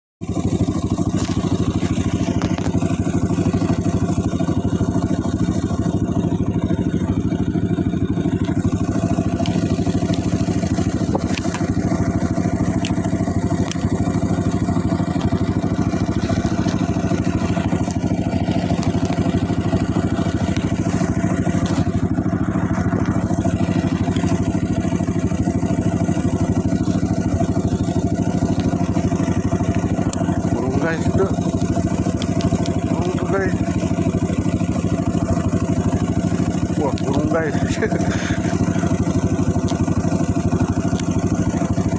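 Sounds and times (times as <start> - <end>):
motorcycle engine running: 0.2 - 41.9.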